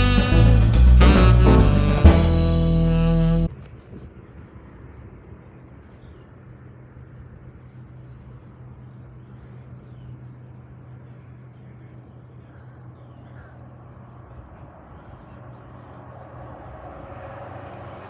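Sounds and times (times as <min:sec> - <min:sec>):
distant engine drone: 0:00.2 - 0:18.0.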